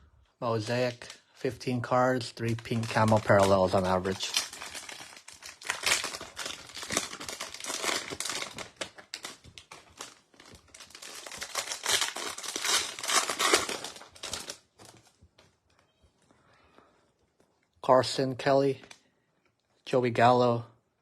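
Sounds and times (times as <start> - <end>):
wrapper crinkling and tearing: 2.4 - 15.2.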